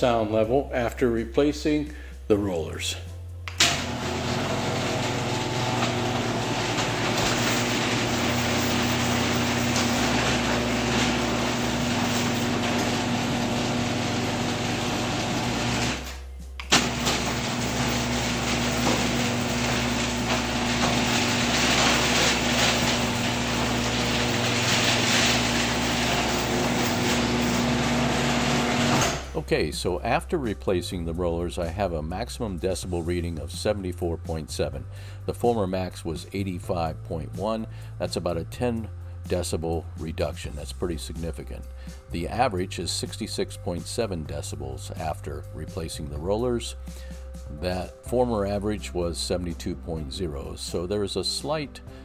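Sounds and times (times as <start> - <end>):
garage door opener motor hum: 3.5 - 29.4
garage door rumbling in tracks: 3.6 - 29.4.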